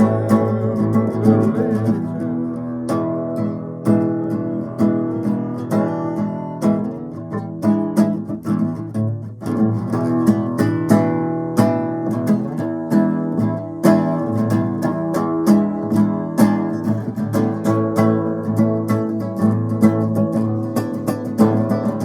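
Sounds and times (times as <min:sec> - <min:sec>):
acoustic guitar blues: 0:00.0 - 0:22.0.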